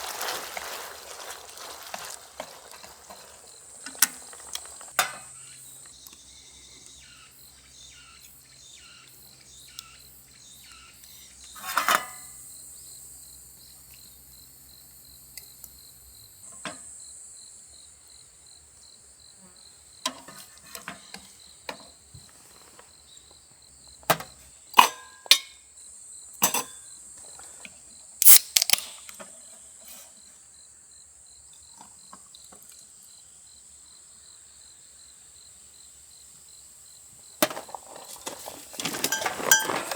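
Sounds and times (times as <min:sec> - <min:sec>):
utensils clinking on dishes: 0:00.0 - 0:05.4, 0:11.6 - 0:12.4, 0:24.1 - 0:25.6, 0:26.4 - 0:26.8, 0:37.4 - 0:39.9
crickets chirping: 0:00.0 - 0:39.9.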